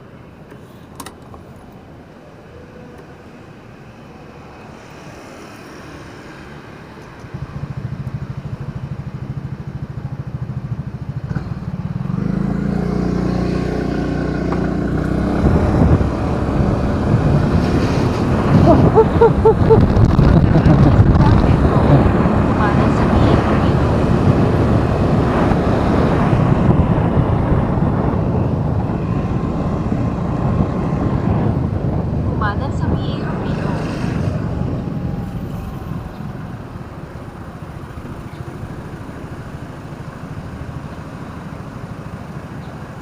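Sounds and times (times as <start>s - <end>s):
motorcycle engine: 7.3s - 32.4s.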